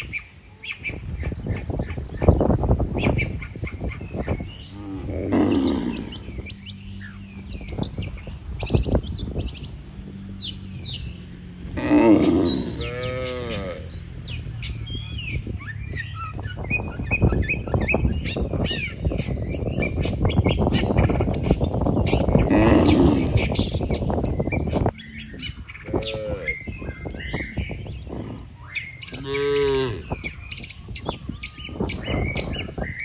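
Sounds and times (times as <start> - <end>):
birds chirping: 0.0 - 33.0
cattle mooing: 4.7 - 6.6, 11.0 - 14.5, 22.4 - 23.7, 25.5 - 26.7, 29.1 - 30.3.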